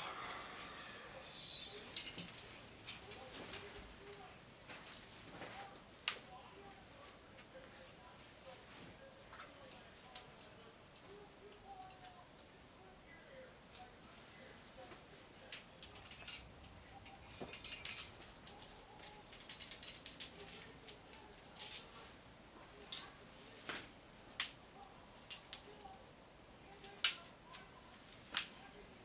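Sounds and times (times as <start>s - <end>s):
metal climbing gear clinking: 1.6s - 5.1s, 15.5s - 22.1s.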